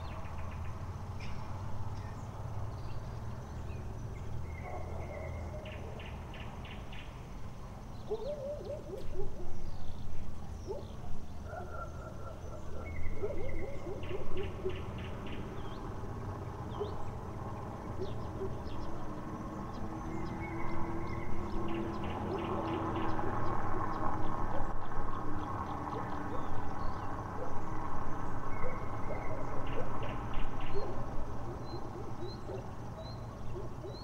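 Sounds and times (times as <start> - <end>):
lower wavering bird calls: 8.0 - 34.0.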